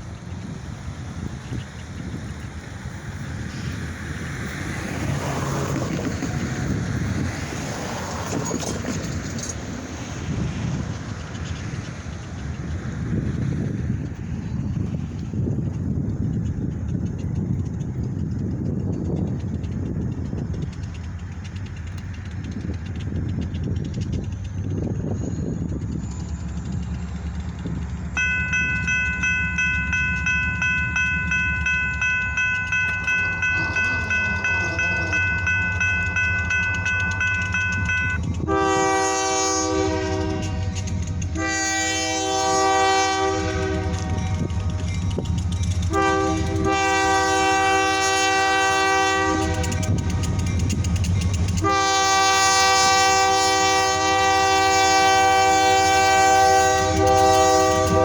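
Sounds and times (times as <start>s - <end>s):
diesel locomotives rumbling past: 0.0s - 58.0s
bell ringing: 28.2s - 38.4s
locomotive air horn blasts: 36.6s - 44.9s, 45.9s - 50.0s, 51.6s - 58.0s.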